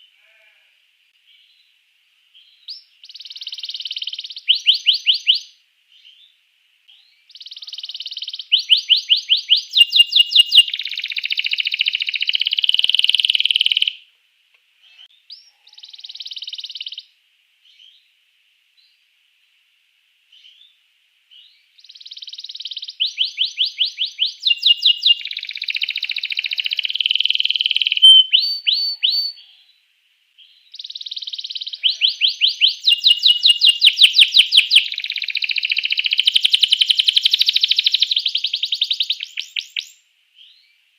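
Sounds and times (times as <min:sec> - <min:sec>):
canary singing: 0:02.4 - 0:06.3, 0:07.0 - 0:14.0, 0:14.9 - 0:17.1, 0:21.3 - 0:29.6, 0:30.4 - 0:40.7.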